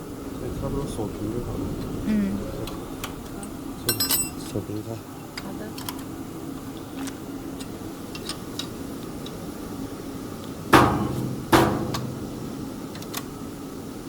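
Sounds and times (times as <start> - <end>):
metal bangs ringing: 2.9 - 4.9, 10.8 - 12.9.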